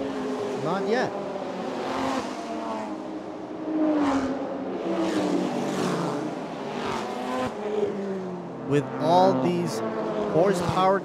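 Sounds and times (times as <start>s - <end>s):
race cars passing by: 0.0s - 11.0s.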